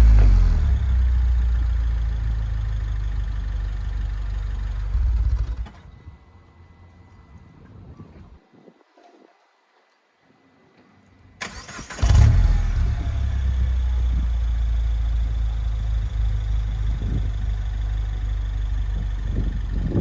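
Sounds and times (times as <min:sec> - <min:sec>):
car engine starting and idling: 0:00.0 - 0:05.9, 0:11.4 - 0:20.0.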